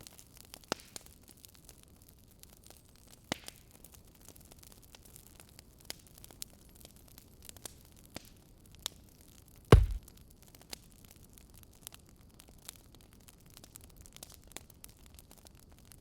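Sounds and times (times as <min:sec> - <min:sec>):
loud deep thump: 0:09.7 - 0:10.0
wood fire crackling: 0:09.7 - 0:10.0.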